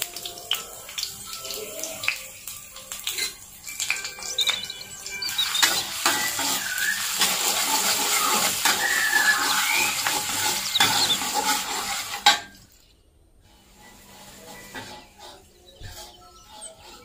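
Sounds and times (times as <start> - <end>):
food sizzling in hot oil: 0.0 - 12.8
metal spatula scraping pan: 3.0 - 17.0.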